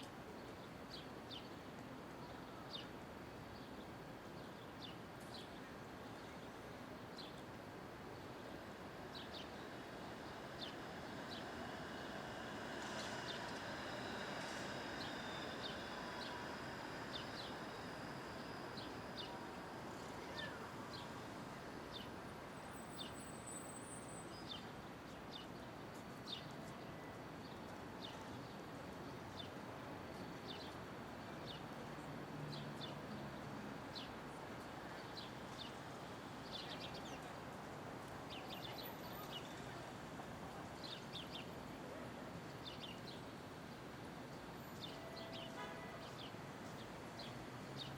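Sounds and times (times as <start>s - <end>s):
traffic hum: 5.2s - 25.1s.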